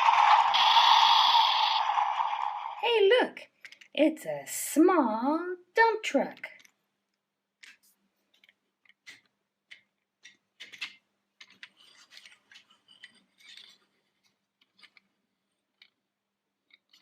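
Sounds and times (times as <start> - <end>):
plastic rubbing and rolling: 7.6 - 17.0.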